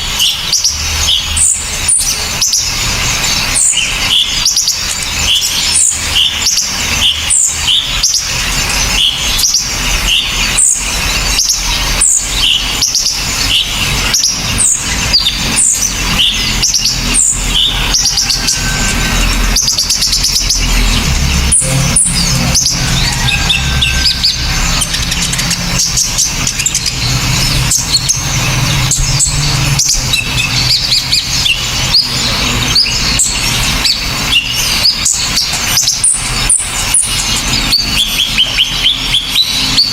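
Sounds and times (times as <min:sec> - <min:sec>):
songbirds chirping rapidly: 0:00.0 - 0:39.9.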